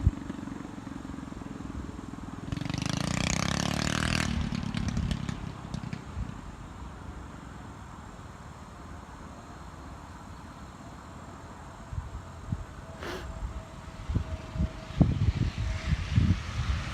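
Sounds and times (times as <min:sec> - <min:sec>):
mini bike engine running: 0:00.0 - 0:06.4.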